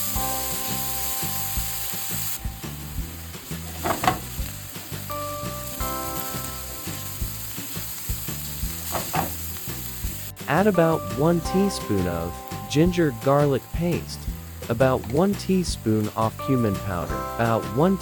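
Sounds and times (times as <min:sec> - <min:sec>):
onion sizzling in a frying pan: 0:00.0 - 0:18.0
spatula scraping a pan: 0:03.6 - 0:04.4, 0:08.6 - 0:09.6.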